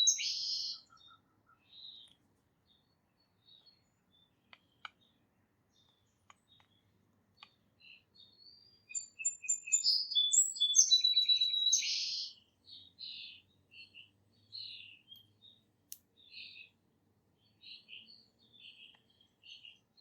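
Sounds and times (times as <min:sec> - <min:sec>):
songbirds chirping and singing: 0:00.0 - 0:20.0
faint sharp clicks: 0:04.5 - 0:05.1, 0:05.8 - 0:07.6, 0:15.9 - 0:16.1.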